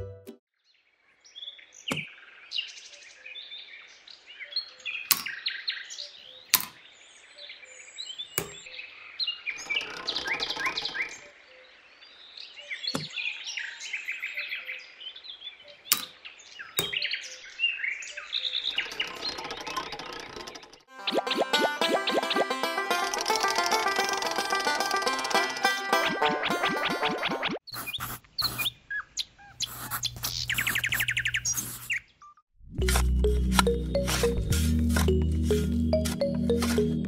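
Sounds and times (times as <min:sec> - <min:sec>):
songbirds chirping: 0:00.6 - 0:21.4, 0:27.7 - 0:32.4.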